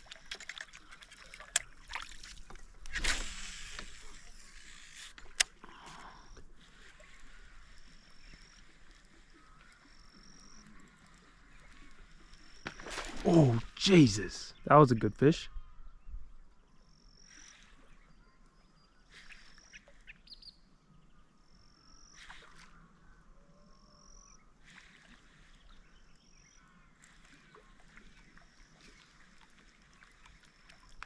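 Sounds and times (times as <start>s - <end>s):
faint bird chirps: 14.5s - 29.2s.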